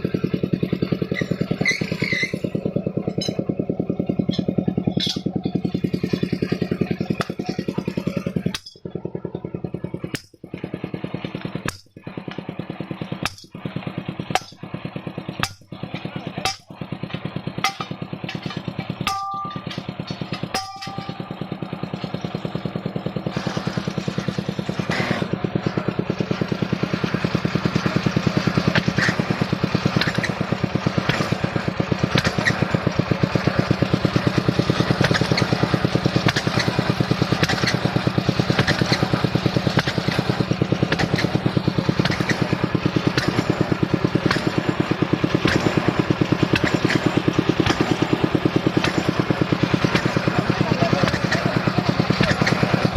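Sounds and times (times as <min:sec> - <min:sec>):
drilling rig engine pulsing: 0:00.0 - 0:52.9
short clicks and clanks: 0:34.6 - 0:52.9.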